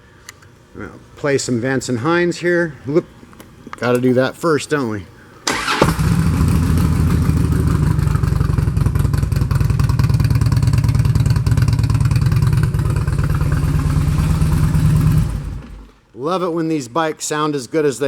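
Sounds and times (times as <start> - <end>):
starter motor whir: 5.5 - 16.0
motorcycle engine idling loudly: 5.9 - 15.9.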